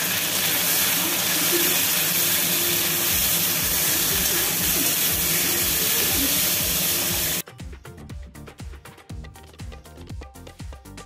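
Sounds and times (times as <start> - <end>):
food sizzling in hot oil: 0.0 - 7.4.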